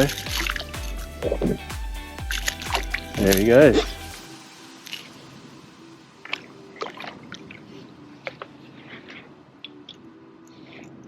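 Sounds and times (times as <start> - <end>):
water splashes and drips: 0.0 - 1.6, 2.2 - 5.3, 6.0 - 10.0.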